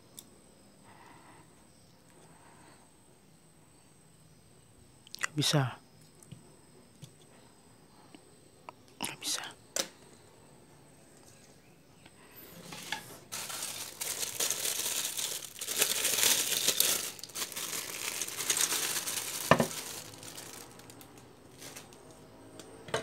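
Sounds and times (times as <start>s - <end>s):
plastic crinkling: 12.6s - 22.1s.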